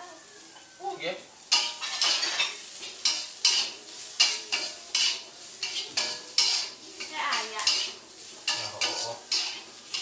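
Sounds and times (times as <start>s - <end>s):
oil sizzling: 0.0s - 10.0s
spatula scraping frying pan: 1.5s - 10.0s.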